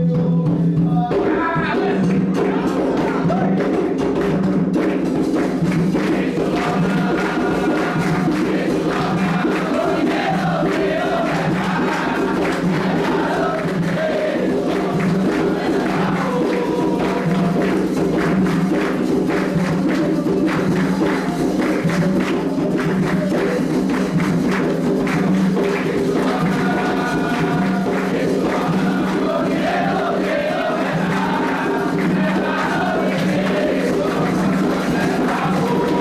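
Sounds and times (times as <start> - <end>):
drumming and percussion: 0.0 - 36.0
group of voices singing: 0.0 - 36.0.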